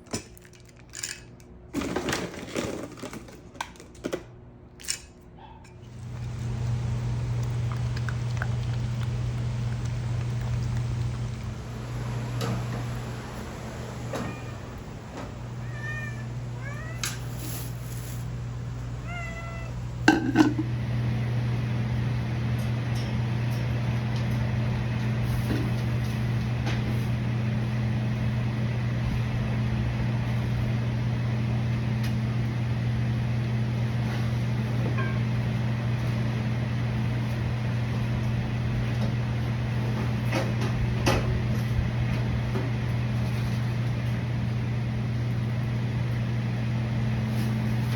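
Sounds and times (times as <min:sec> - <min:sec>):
steady low hum: 0:04.8 - 0:47.9
dog whining: 0:15.5 - 0:17.4.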